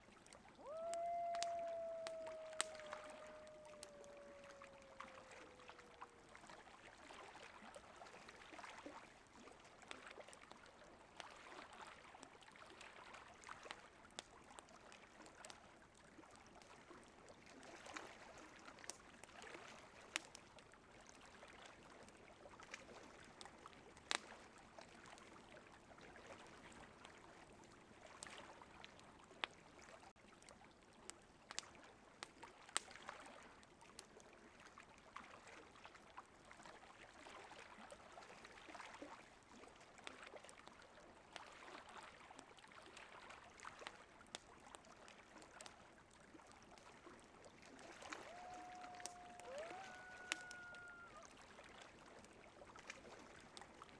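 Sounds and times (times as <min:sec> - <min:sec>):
coyote howling: 0:00.6 - 0:06.2, 0:48.1 - 0:51.3.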